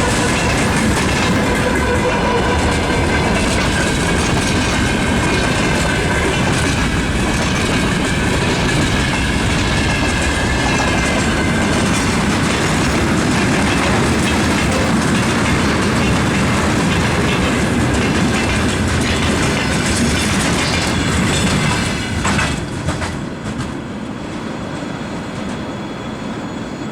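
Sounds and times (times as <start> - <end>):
high wheel squeal: 0.0 - 5.8, 24.6 - 26.9
freight train wheels clattering: 0.0 - 23.9.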